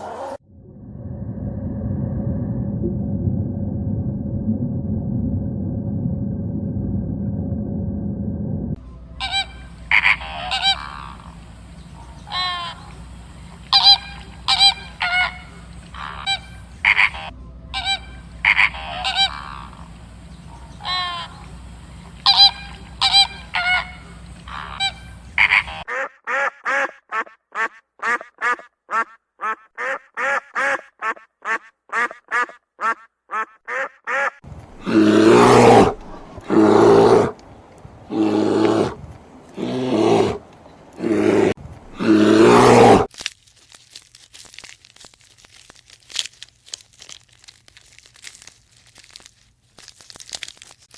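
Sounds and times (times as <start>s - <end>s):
low hum: 0.4s - 25.8s
geese honking: 9.1s - 34.4s
rapid quacks: 9.2s - 11.3s, 13.7s - 19.9s, 22.2s - 34.4s
long loud animal calls: 9.2s - 35.9s.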